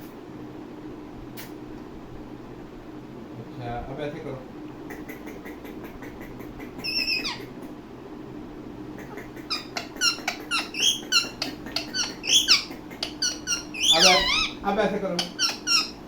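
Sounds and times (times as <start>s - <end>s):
parakeet squawking and chirping: 5.0s - 7.6s, 9.0s - 16.0s.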